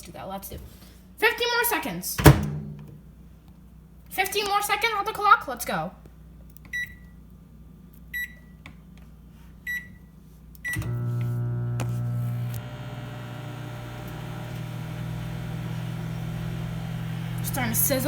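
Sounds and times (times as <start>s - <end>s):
microwave running hum: 9.7s - 18.0s.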